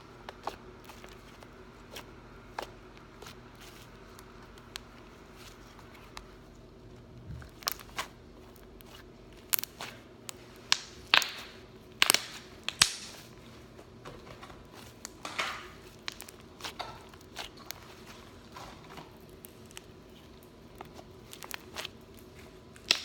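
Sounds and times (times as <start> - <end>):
slime squished by hand: 7.3 - 13.4, 14.7 - 23.0.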